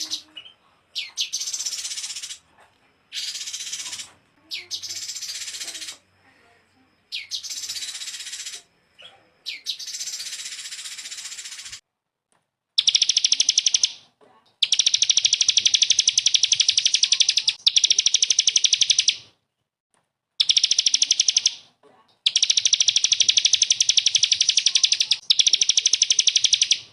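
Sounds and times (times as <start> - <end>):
songbird trilling: 0.0 - 2.4, 3.1 - 6.0, 7.1 - 8.7, 9.4 - 11.8, 12.8 - 14.0, 14.6 - 19.2, 20.4 - 21.6, 22.3 - 26.9
hissy high bird call: 3.1 - 4.1, 4.7 - 6.0, 7.1 - 8.7, 9.5 - 11.8.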